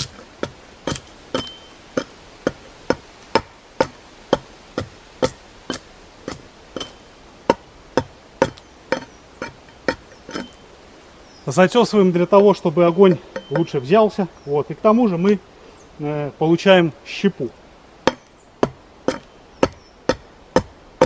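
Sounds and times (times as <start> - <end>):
axe chopping log: 0.0 - 10.5, 18.0 - 20.8.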